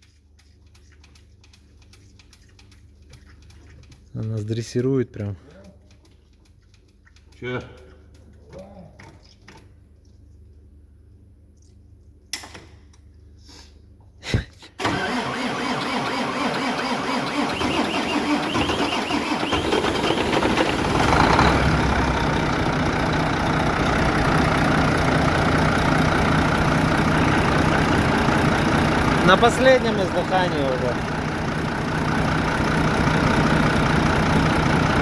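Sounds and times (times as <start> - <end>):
diesel engine cranking and starting: 14.8 - 35.0.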